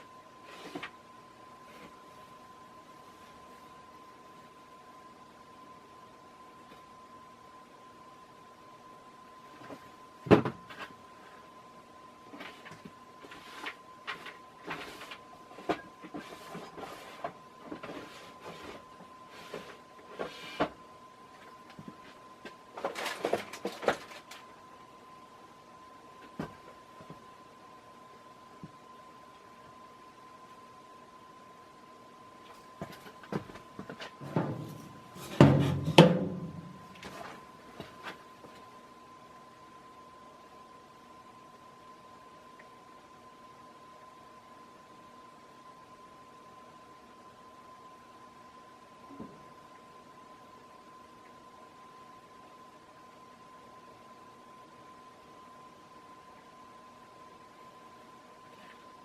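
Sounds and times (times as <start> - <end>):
ceiling fan whine: 0.0 - 59.0
knocks and clanks: 34.2 - 37.1.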